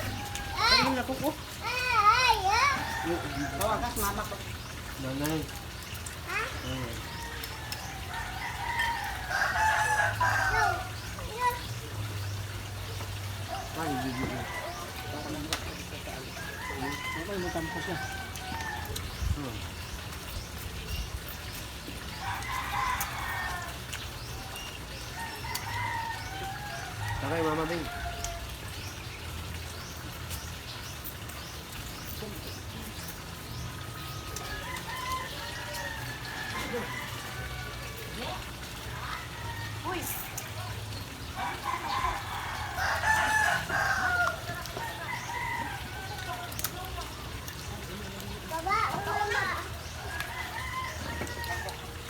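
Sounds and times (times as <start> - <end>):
rooster crowing: 0.0 - 1.3, 2.4 - 4.3, 6.9 - 11.1, 13.4 - 19.0, 22.2 - 28.6, 33.8 - 40.0, 41.2 - 46.6, 48.8 - 52.0.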